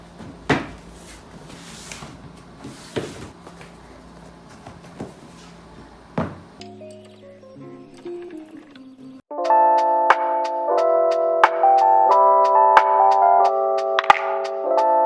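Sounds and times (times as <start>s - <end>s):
objects knocking on hard surface: 0.1s - 6.6s
music: 6.6s - 15.0s.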